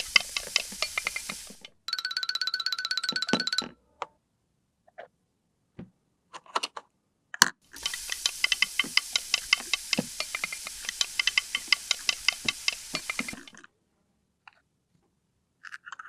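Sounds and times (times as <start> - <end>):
quick irregular ticks: 0.0 - 1.9, 7.7 - 13.6
steady hiss: 0.0 - 1.9, 7.7 - 13.6
plastic toy pieces clicking: 15.6 - 16.0.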